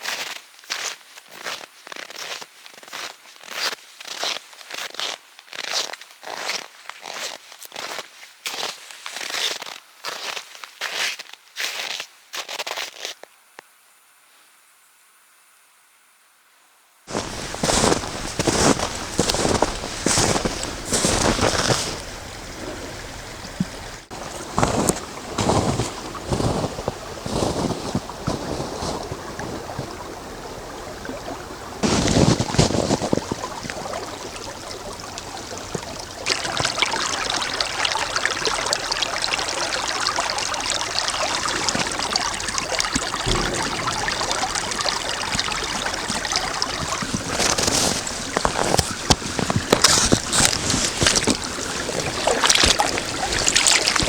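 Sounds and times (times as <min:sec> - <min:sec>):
boots crunching on snow: 0:17.1 - 0:37.2, 0:43.2 - 0:54.0
steady rushing noise: 0:43.2 - 0:48.2.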